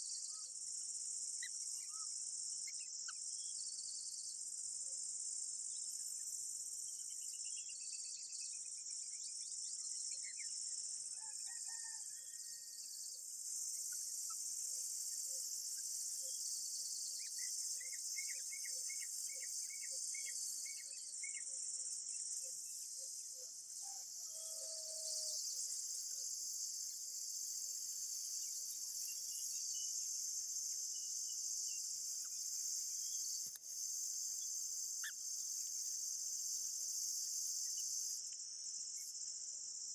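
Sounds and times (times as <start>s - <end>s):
faint bird chirps: 0.0s - 0.6s, 1.4s - 5.1s
high-pitched insect chorus: 0.0s - 39.9s.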